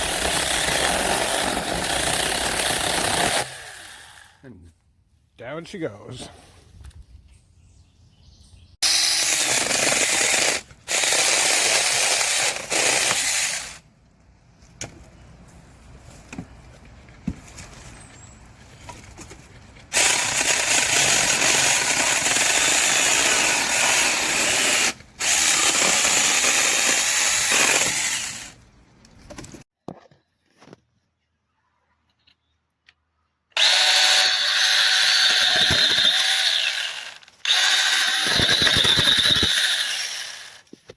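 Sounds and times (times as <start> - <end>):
electric chainsaw motor running: 8.8 - 13.8, 19.9 - 28.6, 33.6 - 40.7.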